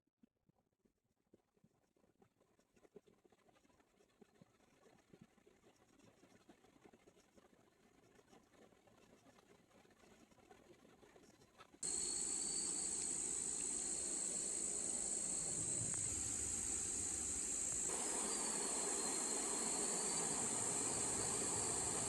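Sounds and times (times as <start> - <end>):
insect chorus drone: 11.8 - 22.0
constant rushing noise: 11.9 - 22.0.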